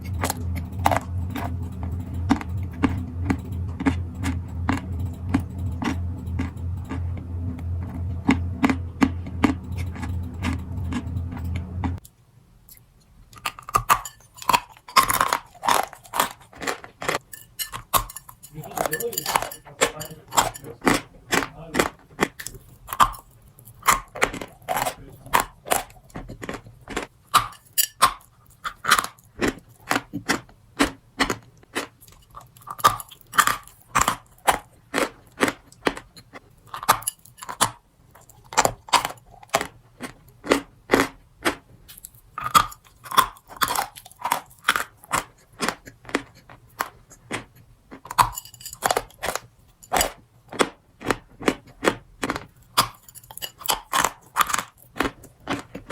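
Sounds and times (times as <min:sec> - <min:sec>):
crunchy treat being chewed: 0:12.7 - 0:55.9.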